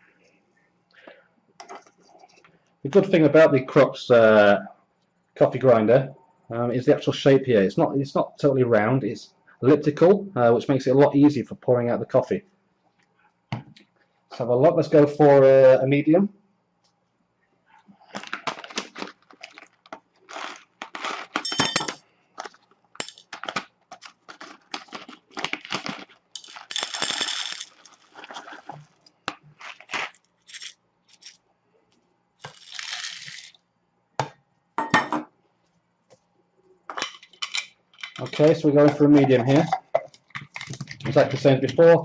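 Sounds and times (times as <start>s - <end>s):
coffee beans rattling: 18.1s - 31.4s, 32.4s - 33.6s.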